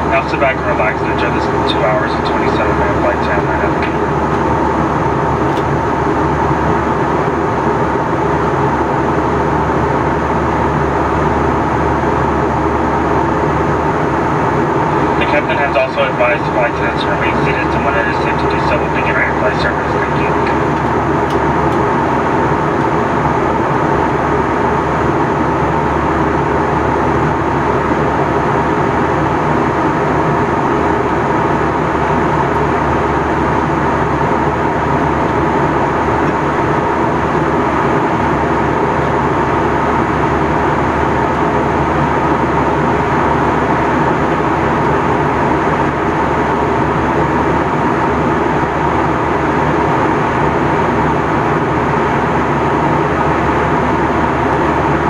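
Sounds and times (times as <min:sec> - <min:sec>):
jet engines droning: 0:00.0 - 0:55.0
thin steady whine: 0:00.0 - 0:55.0
airflow rushing over fuselage: 0:01.0 - 0:07.9.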